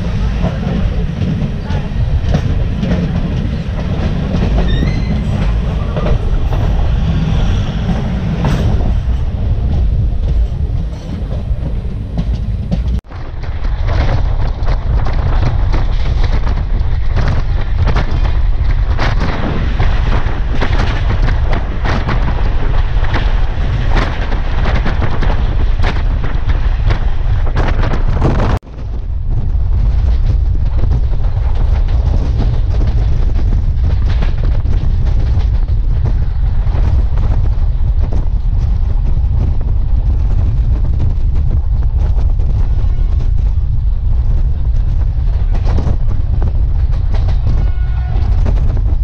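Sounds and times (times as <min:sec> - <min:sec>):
passing train rushing: 0:00.0 - 0:28.3, 0:42.4 - 0:49.0
wheels clattering over rail joints: 0:00.0 - 0:28.6
train rumble: 0:00.0 - 0:49.0.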